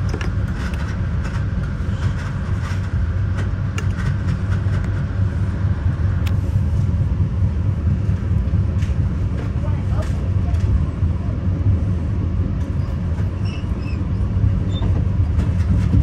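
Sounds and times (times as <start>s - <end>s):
train rumbling over rails: 0.0s - 16.0s.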